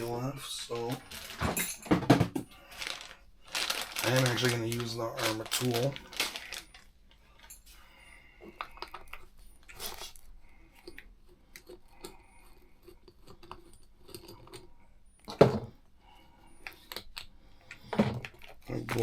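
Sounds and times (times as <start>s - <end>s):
metal tools clicking and rattling: 0.8s - 2.0s.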